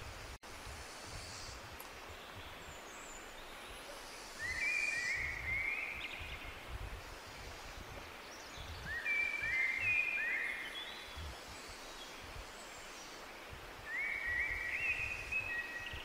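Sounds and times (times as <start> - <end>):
outdoor hiss: 0.0 - 16.0
birds whistling: 8.8 - 10.9, 13.9 - 16.0.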